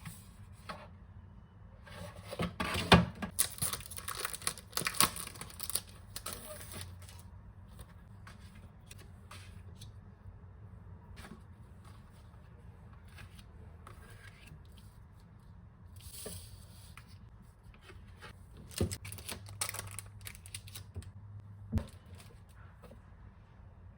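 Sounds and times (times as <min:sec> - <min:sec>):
packaging rustling and scraping: 0:03.3 - 0:07.3, 0:17.9 - 0:20.9.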